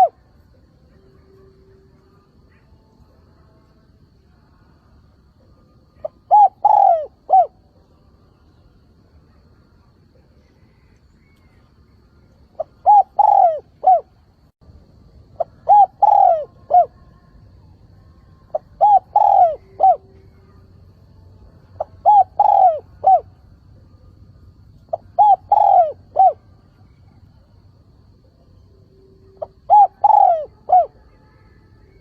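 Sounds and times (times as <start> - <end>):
dove cooing: 0.0 - 0.2, 5.9 - 7.7, 12.6 - 14.2, 15.3 - 17.1, 18.5 - 20.6, 21.8 - 23.4, 24.8 - 27.5, 29.2 - 31.4.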